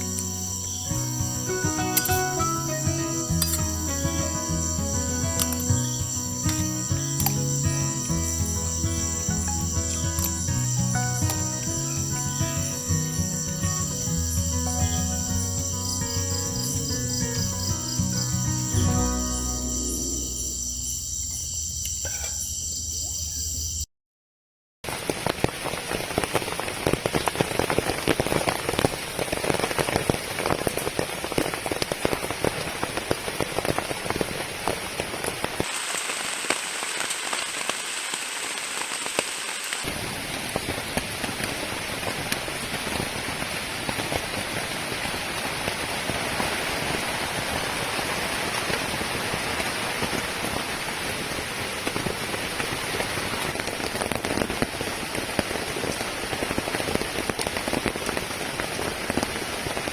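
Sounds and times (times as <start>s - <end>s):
heavy rain falling: 0.0s - 21.4s, 24.9s - 59.9s.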